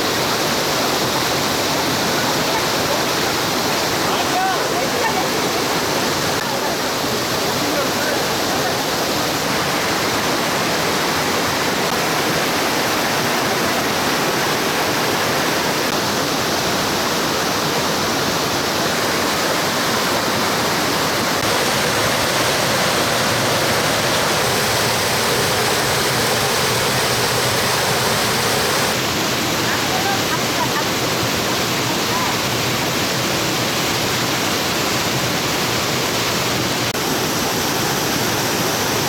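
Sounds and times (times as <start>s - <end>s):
stream rushing over rocks: 0.0s - 39.0s.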